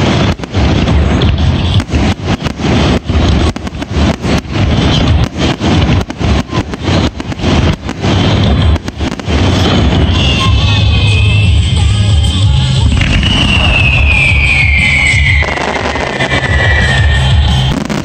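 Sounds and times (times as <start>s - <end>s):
fireworks shells bursting: 0.0s - 18.0s.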